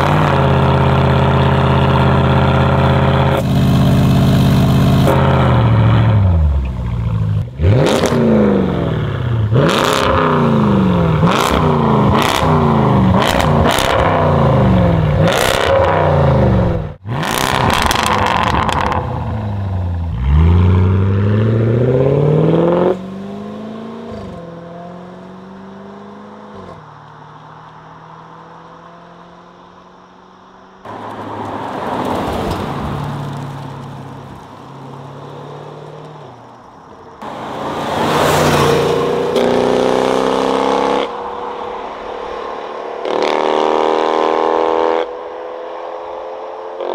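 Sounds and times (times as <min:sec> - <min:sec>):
car engine revving: 0:00.0 - 0:36.5, 0:37.1 - 0:46.9
car passing by: 0:30.9 - 0:36.3, 0:37.2 - 0:45.2.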